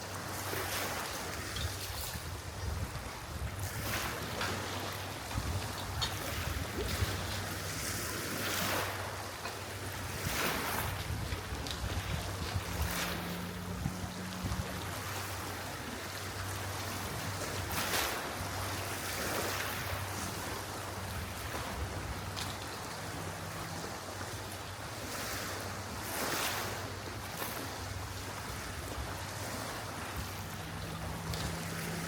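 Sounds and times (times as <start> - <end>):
sea waves washing: 0.0 - 32.0
wind: 0.0 - 32.0.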